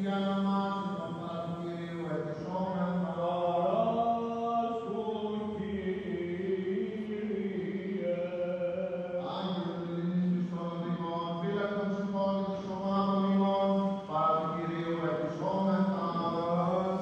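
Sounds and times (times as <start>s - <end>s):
slow chanting voices: 0.0s - 17.0s
low drone note: 8.0s - 10.2s.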